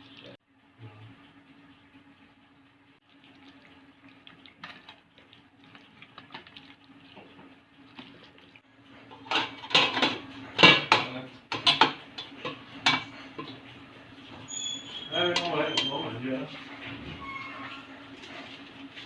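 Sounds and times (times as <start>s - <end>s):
dishes and utensils clattering: 9.1s - 13.6s, 14.4s - 16.2s.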